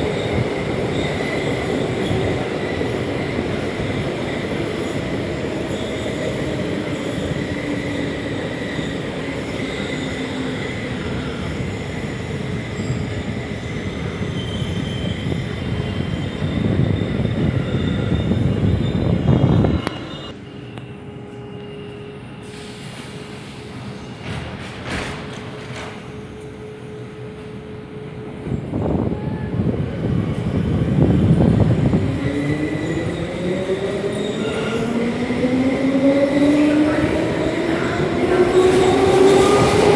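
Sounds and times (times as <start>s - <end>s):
train wheels rumbling on rails: 21.8s - 39.9s.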